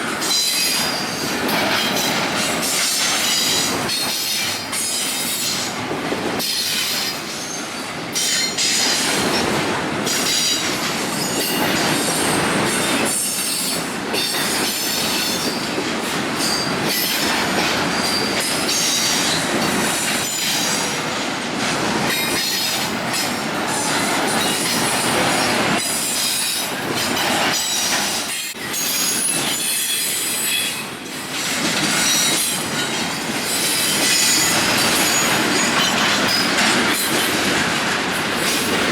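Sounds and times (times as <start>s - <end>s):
train wheels squealing: 0.0s - 5.8s, 6.4s - 21.0s, 22.1s - 37.5s
train cars rumbling: 0.0s - 38.9s
wheels clicking over rail joints: 31.0s - 38.9s.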